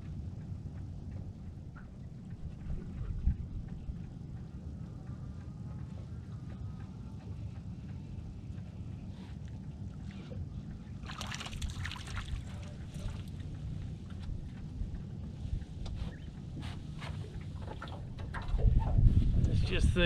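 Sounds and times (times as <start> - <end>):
wind rumbling on microphone: 0.0 - 20.0
water splashing: 11.0 - 13.4.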